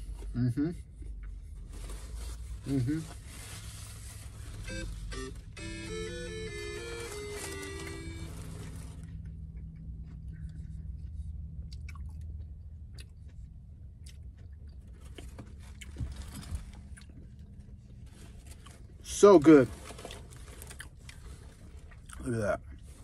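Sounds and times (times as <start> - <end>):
background music with plucked notes: 5.1 - 8.5
person chewing: 9.5 - 17.6.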